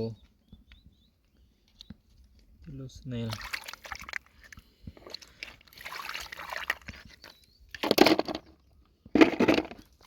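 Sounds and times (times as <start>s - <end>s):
water sloshing and splashing: 3.2s - 8.4s, 9.2s - 10.0s.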